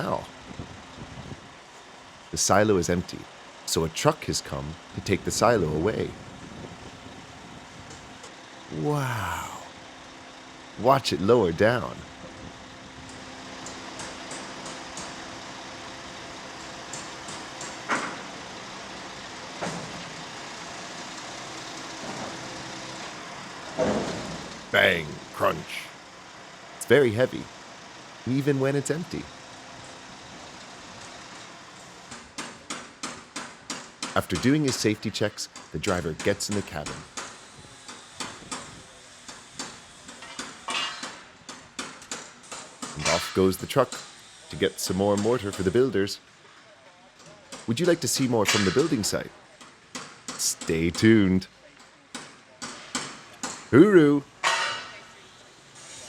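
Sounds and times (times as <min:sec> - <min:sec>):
sharp metal clank: 0:48.5 - 0:49.0.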